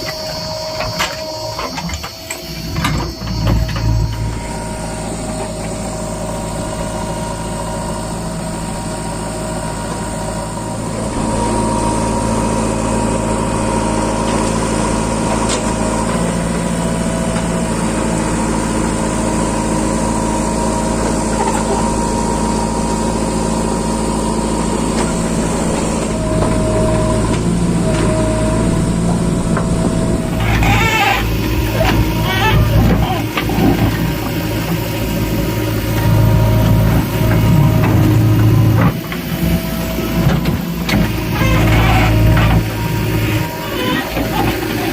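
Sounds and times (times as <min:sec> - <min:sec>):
heavy diesel engine running: 0:00.0 - 0:44.9.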